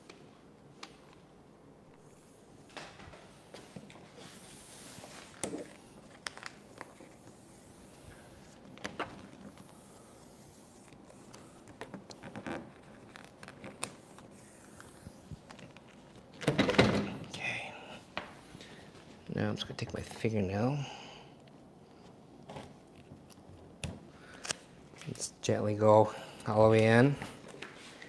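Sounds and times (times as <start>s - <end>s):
vinyl wrap scraping and crinkling: 4.1s - 16.4s.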